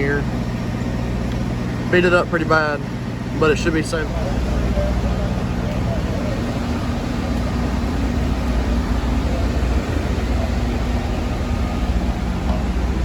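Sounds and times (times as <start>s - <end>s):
machinery drone with hiss: 0.0s - 13.0s.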